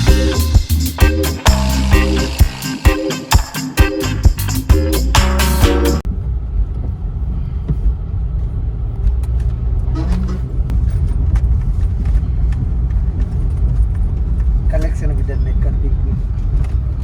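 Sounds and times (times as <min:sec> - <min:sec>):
music: 0:00.0 - 0:06.0
steady low rumble: 0:04.2 - 0:17.0.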